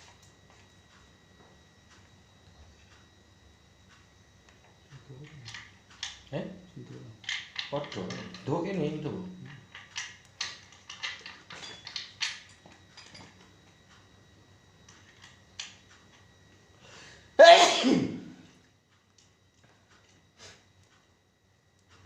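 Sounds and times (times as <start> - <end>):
person sneezing: 17.4 - 18.4.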